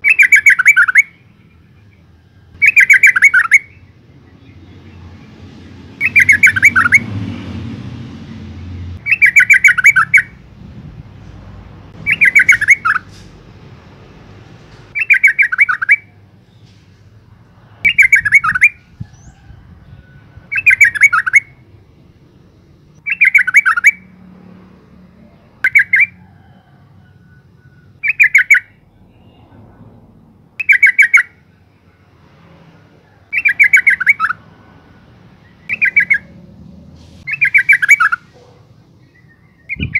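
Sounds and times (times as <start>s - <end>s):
bulbul chattering call: 2.6s - 3.8s, 6.0s - 7.0s, 9.0s - 10.4s, 12.0s - 13.2s, 14.9s - 16.2s, 20.5s - 21.5s, 23.0s - 24.0s, 28.0s - 29.4s, 30.6s - 31.4s, 33.3s - 34.4s, 35.6s - 36.4s, 37.3s - 39.9s.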